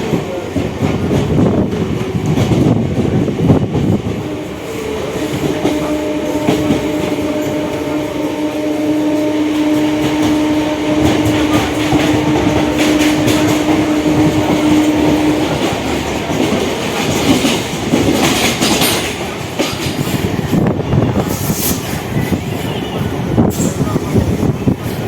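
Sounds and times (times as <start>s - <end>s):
train rumble: 0.0s - 25.0s
wheels clacking over rail joints: 9.6s - 25.0s.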